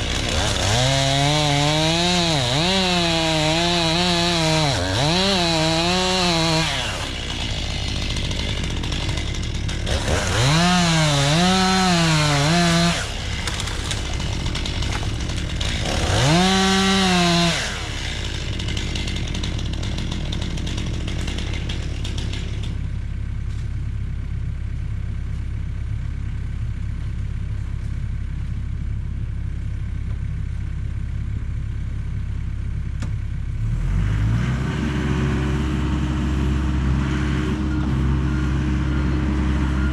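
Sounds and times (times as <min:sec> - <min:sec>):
chainsaw cutting wood: 0:00.0 - 0:22.9
deeper engine running: 0:00.0 - 0:39.9.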